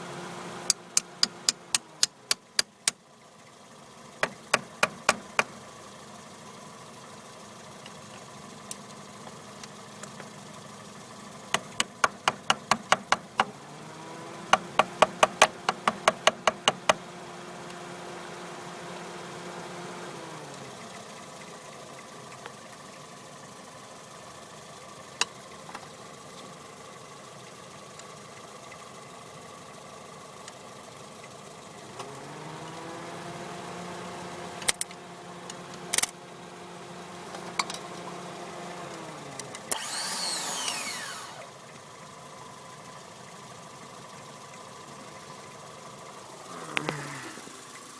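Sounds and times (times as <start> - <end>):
rising whine: 39.7 - 41.5.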